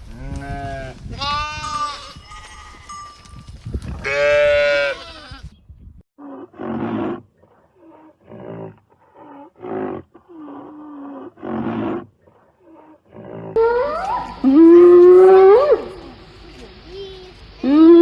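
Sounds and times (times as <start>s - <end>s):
large animal calling: 13.5s - 16.3s.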